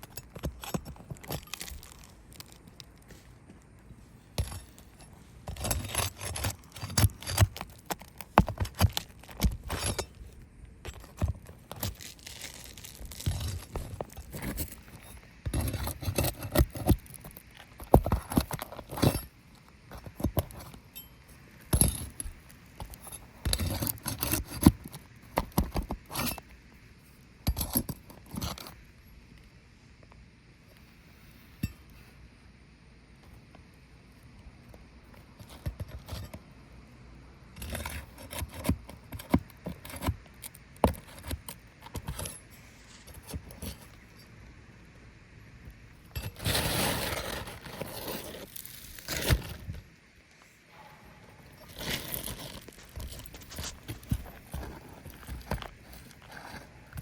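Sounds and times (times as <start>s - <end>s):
small hard objects clinking: 0.1s - 3.0s, 11.7s - 16.5s.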